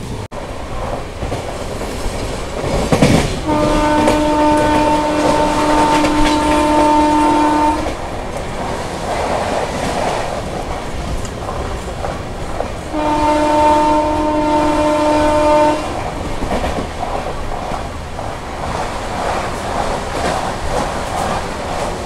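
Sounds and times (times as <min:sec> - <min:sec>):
train wheels rumbling and rattling: 0:00.0 - 0:22.0
train horn blast: 0:03.4 - 0:08.0, 0:12.9 - 0:16.1.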